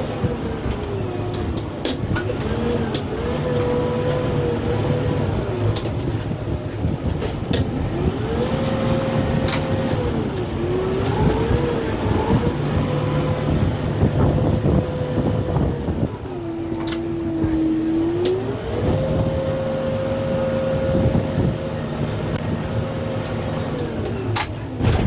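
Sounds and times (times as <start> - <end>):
tractor diesel engine revving: 0.0 - 25.0
sharp cracks and knocks: 24.3 - 25.0.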